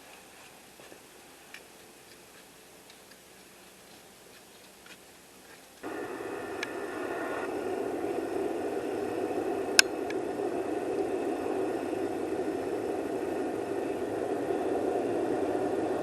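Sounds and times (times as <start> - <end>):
campfire flames rushing: 5.8 - 16.0.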